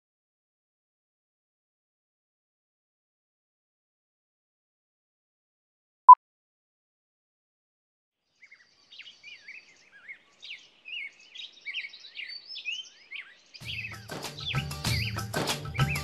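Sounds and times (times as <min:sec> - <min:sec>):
songbirds singing and chirping: 0:08.2 - 0:16.0.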